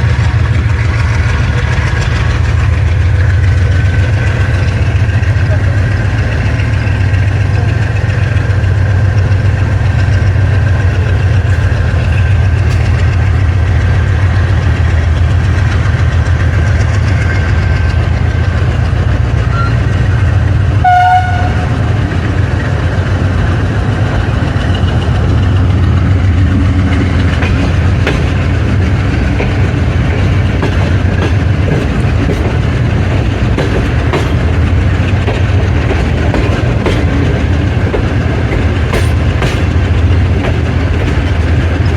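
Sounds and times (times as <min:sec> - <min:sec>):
diesel locomotive chugging: 0:00.0 - 0:41.9
train running: 0:00.0 - 0:41.9
short tone: 0:19.4 - 0:20.1.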